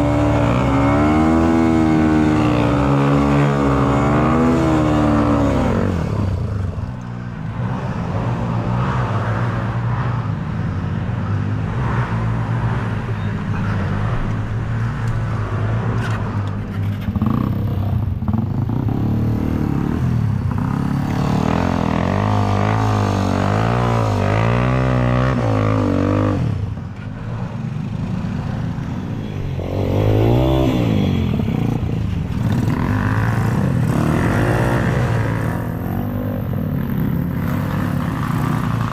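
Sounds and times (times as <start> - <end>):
dirt bike engine revving: 0.0 - 6.3, 29.6 - 31.8, 32.4 - 38.9.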